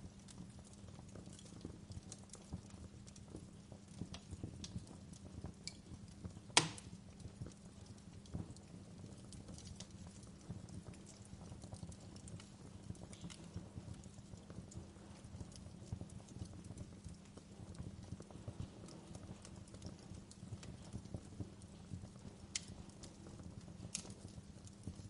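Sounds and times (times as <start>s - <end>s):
low rumble of burning fire: 0.0s - 25.0s
wood fire crackling: 0.0s - 25.0s
sharp pops of fire: 3.3s - 7.4s, 10.9s - 25.0s.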